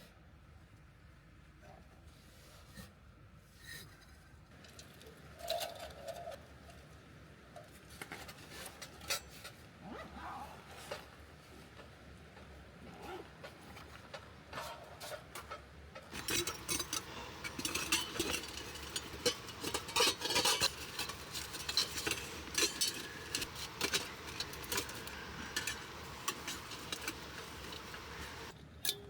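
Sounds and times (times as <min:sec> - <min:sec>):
small hard items clinking: 0:16.1 - 0:28.6.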